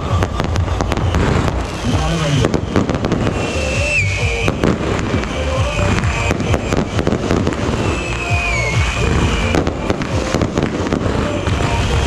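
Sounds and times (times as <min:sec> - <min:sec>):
continuous crackling: 0:00.0 - 0:12.0
descending firework whistle: 0:00.0 - 0:12.0
fireworks pops and bangs: 0:00.0 - 0:12.0.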